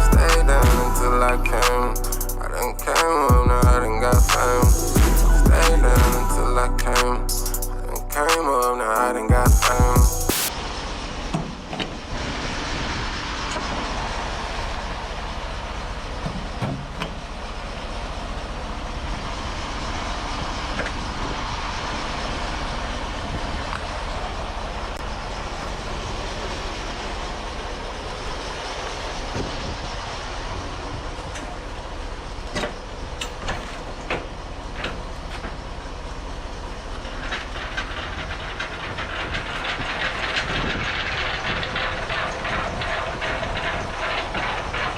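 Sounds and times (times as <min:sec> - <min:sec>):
truck engine and road noise: 0:00.0 - 0:44.9
short rattles and clicks: 0:36.9 - 0:44.9.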